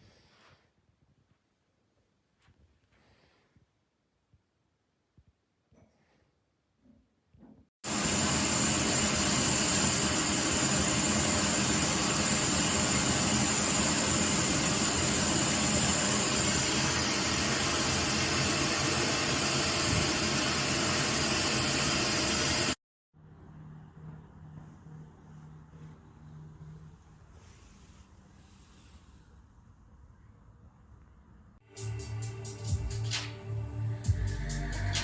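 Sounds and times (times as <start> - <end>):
vacuum cleaner running: 7.8 - 22.8.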